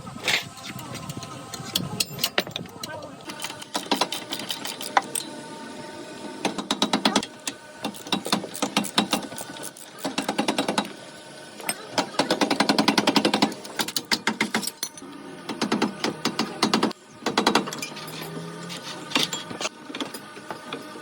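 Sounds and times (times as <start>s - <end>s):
rapid mechanical hammering: 2.0s - 5.3s, 6.4s - 11.0s, 11.6s - 18.0s.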